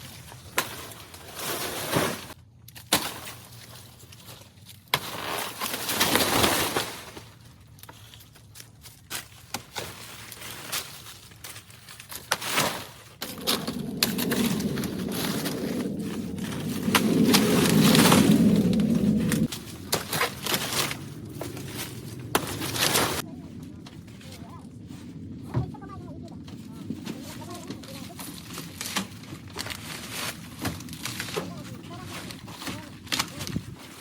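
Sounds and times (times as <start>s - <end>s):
steady low rumble: 13.1s - 32.5s.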